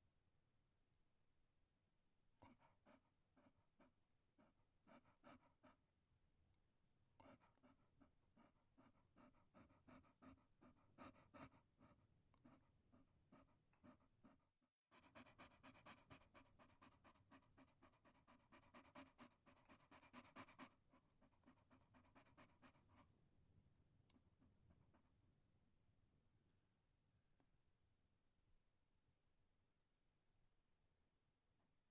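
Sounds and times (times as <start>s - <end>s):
small dog panting: 2.4s - 5.9s, 7.2s - 23.3s.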